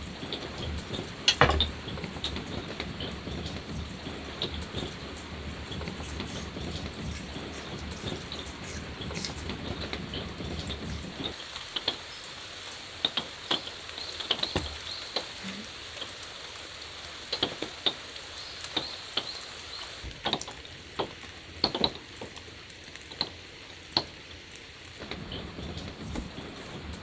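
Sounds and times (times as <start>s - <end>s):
steady rain hiss: 0.0s - 27.0s
heavy drops tapping hard surface: 1.3s - 2.4s.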